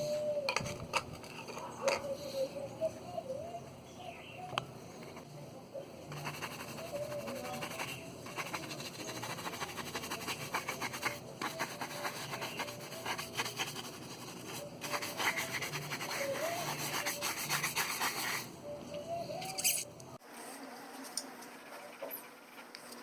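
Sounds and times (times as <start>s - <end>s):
hand sanding plastic: 6.2s - 18.5s.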